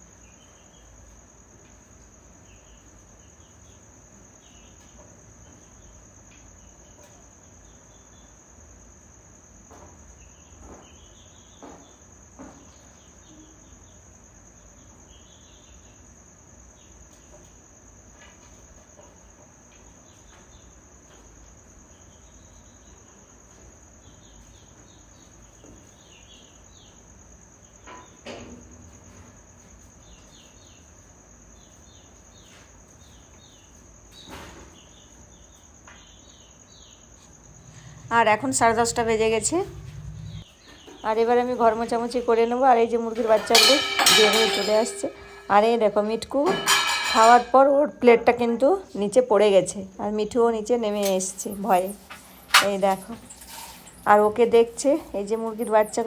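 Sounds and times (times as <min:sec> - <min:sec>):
knocks: 0:43.1 - 0:47.6.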